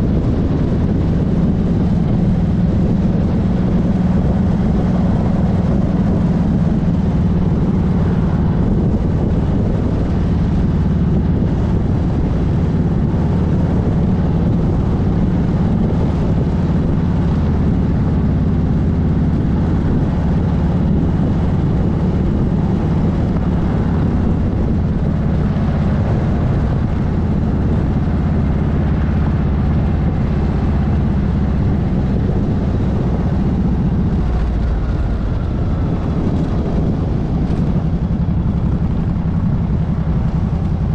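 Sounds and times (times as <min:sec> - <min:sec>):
motorcycle engine cruising: 0:00.0 - 0:40.9
road and wind noise: 0:00.0 - 0:40.9.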